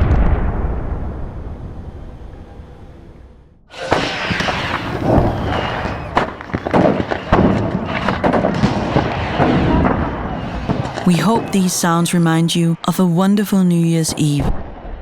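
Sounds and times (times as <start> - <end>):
barrage of bangs and cracks: 3.7 - 11.0.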